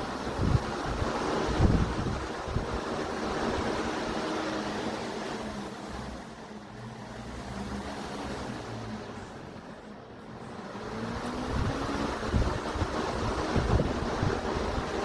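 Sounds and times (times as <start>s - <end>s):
air rushing over microphone: 0.0s - 4.8s, 11.4s - 15.0s
fan motor hum: 0.0s - 15.0s.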